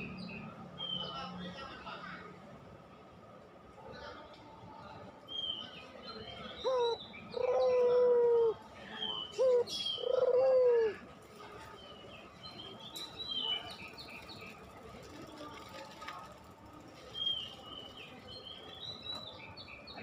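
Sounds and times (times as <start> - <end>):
dove cooing: 6.6 - 8.6, 9.3 - 11.0
small birds chirping: 8.9 - 10.2, 11.6 - 16.3, 16.9 - 20.0.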